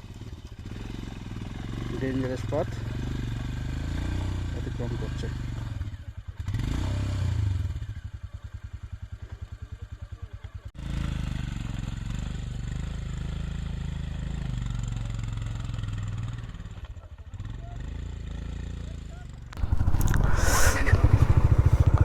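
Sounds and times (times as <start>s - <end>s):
motorcycle engine pulsing: 19.3s - 22.0s.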